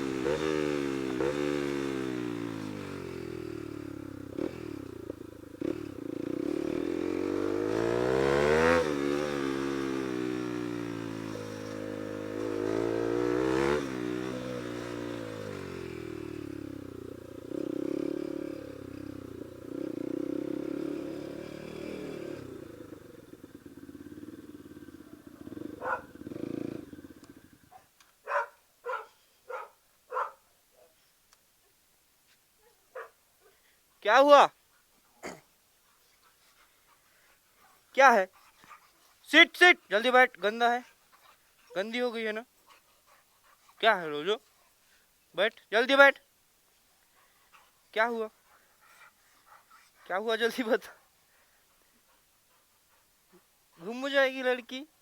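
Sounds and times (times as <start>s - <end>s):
motorcycle engine revving: 0.0s - 27.7s.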